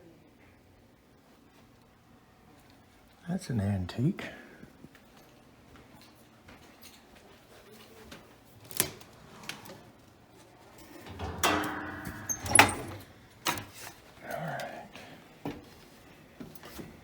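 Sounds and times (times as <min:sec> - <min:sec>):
door hinge creaking: 0:11.1 - 0:13.6
sharp clicks and knocks: 0:11.1 - 0:13.7.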